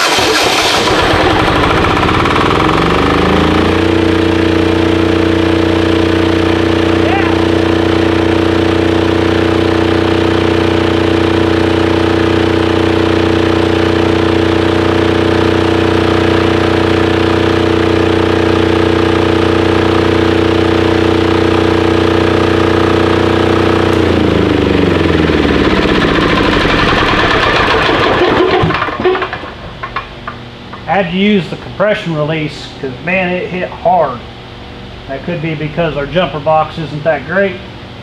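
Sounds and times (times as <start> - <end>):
engine knocking to a stop: 0.0 - 4.7, 23.8 - 30.4
diesel generator engine running: 0.0 - 38.0.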